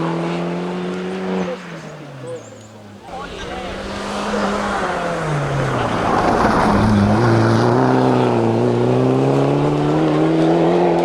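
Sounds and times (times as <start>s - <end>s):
race car engine accelerating: 0.0s - 11.0s.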